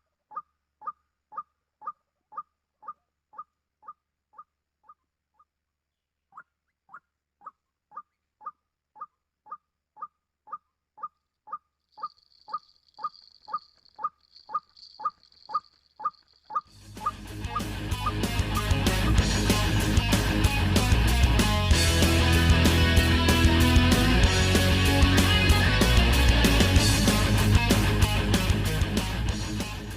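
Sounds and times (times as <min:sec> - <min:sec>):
waterhen calling: 0:00.0 - 0:05.5, 0:06.3 - 0:19.2.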